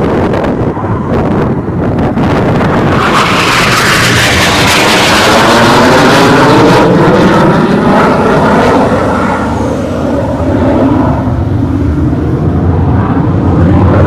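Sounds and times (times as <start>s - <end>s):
jet passing by: 0.0s - 14.0s.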